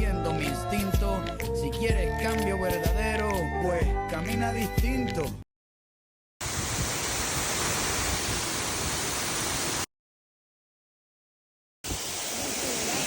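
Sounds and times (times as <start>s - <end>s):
waterfall rushing: 6.4s - 9.8s.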